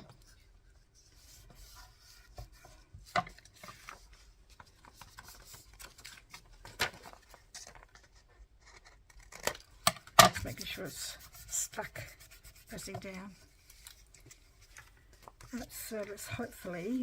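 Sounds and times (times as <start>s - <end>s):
paper rubbing on tabletop: 10.5s - 14.7s.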